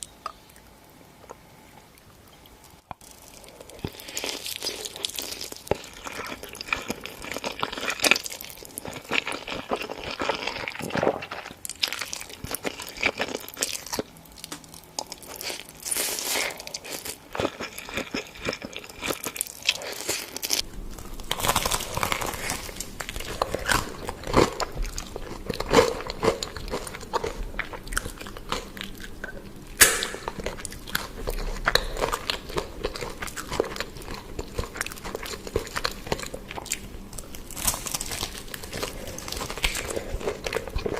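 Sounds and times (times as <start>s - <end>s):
crunchy food being chewed: 0.0s - 40.9s.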